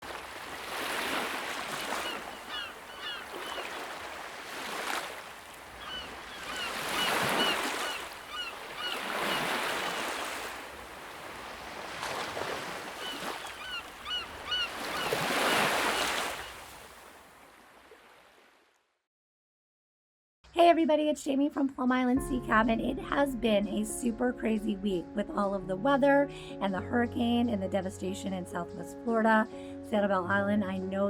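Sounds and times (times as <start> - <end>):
ocean surf breaking: 0.0 - 17.2
short high bird calls: 1.8 - 3.9, 5.8 - 9.9, 13.0 - 16.6.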